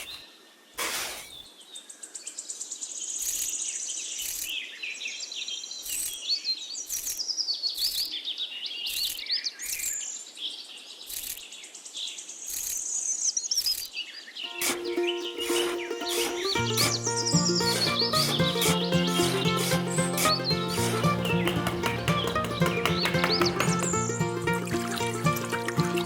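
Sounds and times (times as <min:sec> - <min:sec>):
birds chirping: 0:14.5 - 0:26.0.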